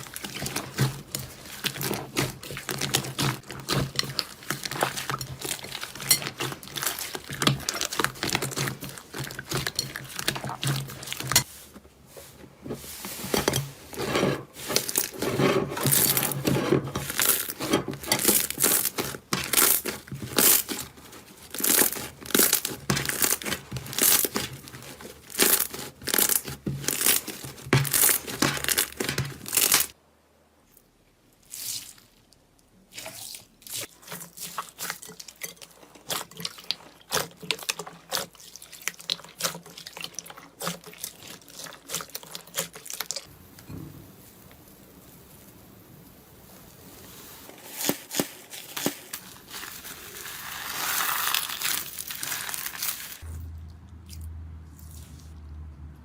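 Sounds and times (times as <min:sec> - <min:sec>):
slime crackling and popping: 0:00.0 - 0:11.5, 0:17.0 - 0:30.0, 0:35.9 - 0:53.4.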